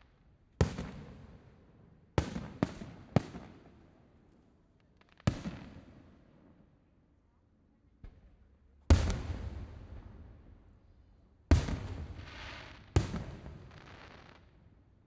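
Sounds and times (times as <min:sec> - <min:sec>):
fireworks booming with echo: 0:08.9 - 0:10.4, 0:11.5 - 0:14.5
fireworks crackling hiss: 0:11.9 - 0:13.0.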